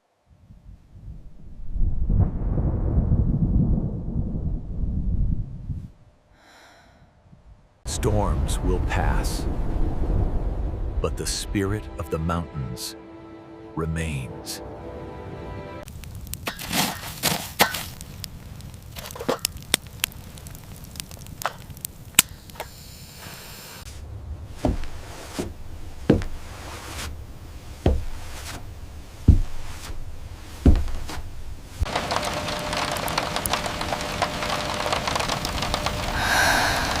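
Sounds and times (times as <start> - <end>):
rain hiss: 7.9 - 11.8, 17.8 - 37.0.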